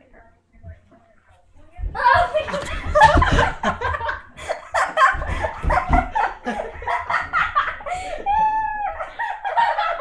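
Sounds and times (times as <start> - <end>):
people laughing: 2.4 - 10.0.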